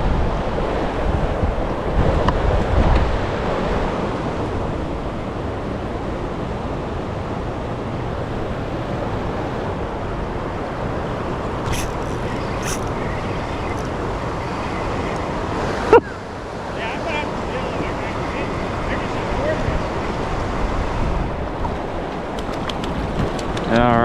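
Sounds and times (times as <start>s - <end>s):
turbulent water rushing: 0.0s - 24.0s
wind on microphone: 0.0s - 24.0s
short high clicks: 11.6s - 14.0s.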